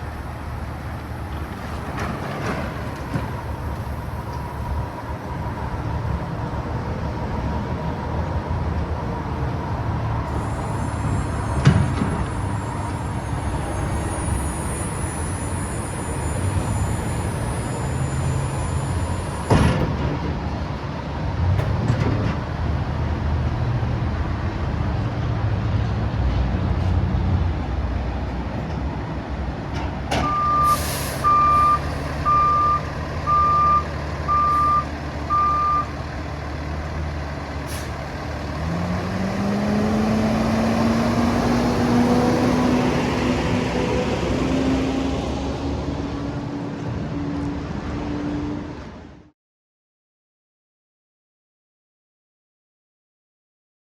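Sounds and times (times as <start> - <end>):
diesel truck engine running: 28.8 - 46.4
backup alarm beeping: 30.2 - 36.0.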